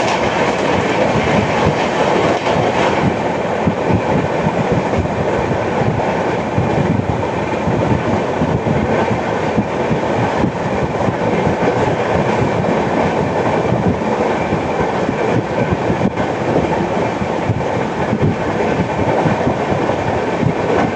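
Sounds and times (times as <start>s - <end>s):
train wheels rumbling on track: 0.0s - 20.9s.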